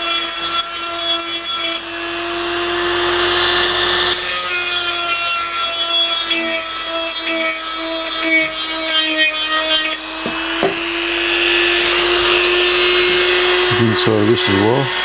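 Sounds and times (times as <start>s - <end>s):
bit grinding metal: 0.0s - 15.0s
rotary tool running: 0.0s - 15.0s.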